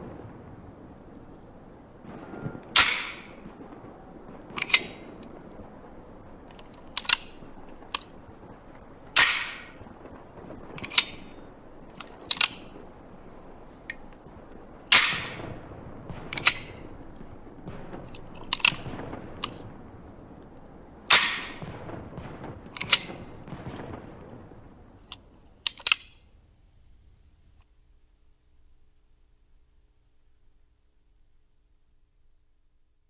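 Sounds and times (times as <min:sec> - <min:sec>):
sharp clicks: 0:04.6 - 0:05.3, 0:06.5 - 0:08.1, 0:11.9 - 0:12.7, 0:16.1 - 0:16.8, 0:25.0 - 0:26.2.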